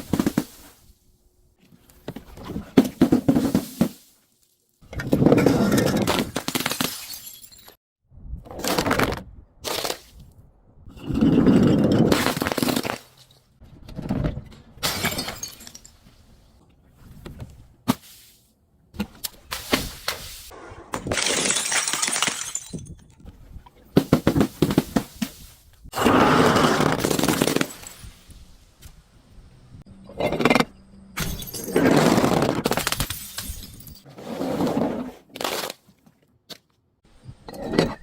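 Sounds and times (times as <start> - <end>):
objects breaking and crushing: 4.8 - 7.8, 11.1 - 13.5, 20.9 - 23.2, 26.0 - 28.4, 30.2 - 34.1
glass shattering: 6.2 - 7.8, 14.8 - 16.0, 21.0 - 23.1, 27.0 - 28.3, 31.2 - 34.1.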